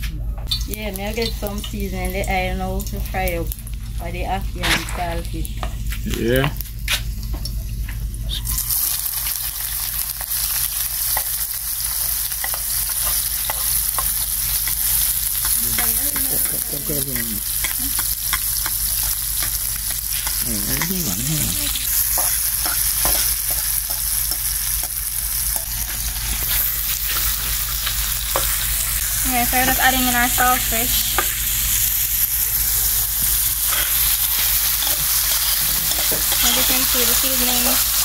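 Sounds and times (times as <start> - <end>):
oil sizzling with crackles: 0.5 - 38.0.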